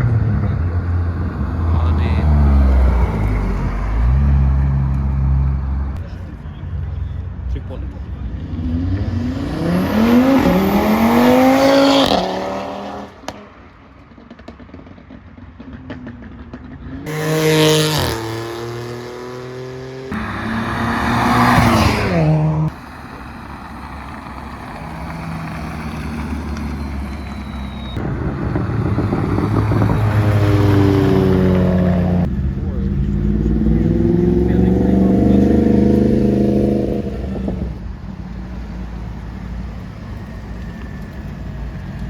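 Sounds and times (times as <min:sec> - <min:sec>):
car engines revving hard: 0:00.0 - 0:06.6, 0:07.2 - 0:13.5, 0:15.7 - 0:42.0
low engine rumble: 0:20.2 - 0:42.0.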